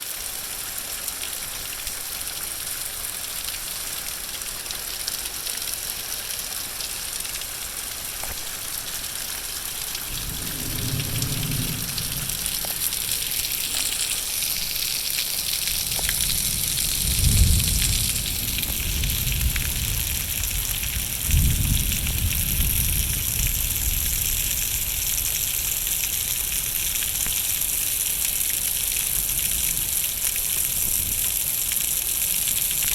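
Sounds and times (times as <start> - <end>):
heavy rain pouring: 0.1 - 32.9
low thunder rumbles: 9.9 - 14.3, 15.7 - 25.5.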